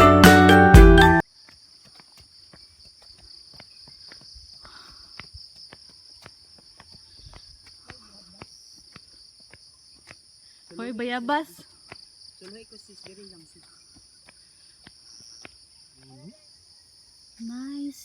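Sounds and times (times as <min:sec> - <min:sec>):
faint footsteps on trail: 0:01.2 - 0:16.3
insects calling in high tones: 0:01.2 - 0:18.0.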